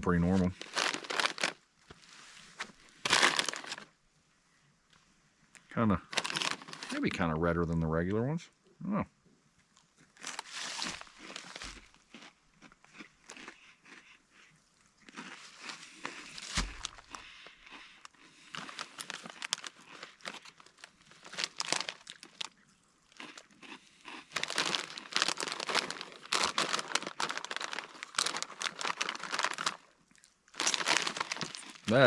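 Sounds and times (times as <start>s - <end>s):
foil snack bag crinkling: 0.1s - 3.9s, 6.0s - 7.1s, 10.2s - 12.3s, 15.1s - 22.5s, 23.1s - 32.0s.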